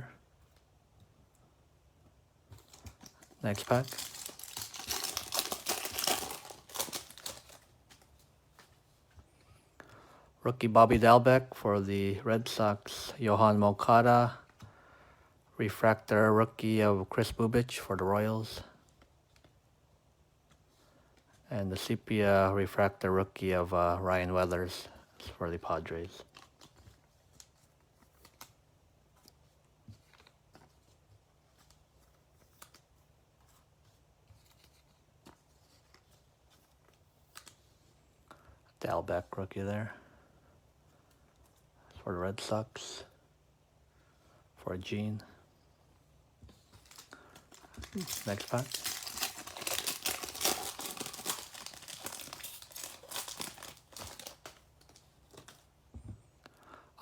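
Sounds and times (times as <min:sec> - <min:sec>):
trading cards clicking and rustling: 0:02.5 - 0:08.7, 0:46.7 - 0:55.7
foil wrapper crinkling and tearing: 0:02.6 - 0:08.2, 0:46.8 - 0:55.7.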